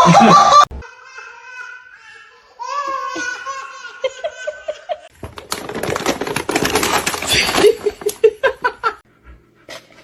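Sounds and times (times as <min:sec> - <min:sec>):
person laughing: 0:00.0 - 0:00.7
clattering and rustling with clicks: 0:05.1 - 0:08.4.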